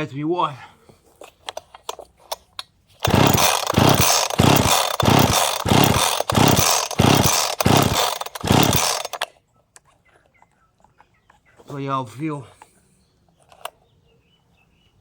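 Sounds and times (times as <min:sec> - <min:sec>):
chainsaw surging unevenly: 0:03.0 - 0:09.2.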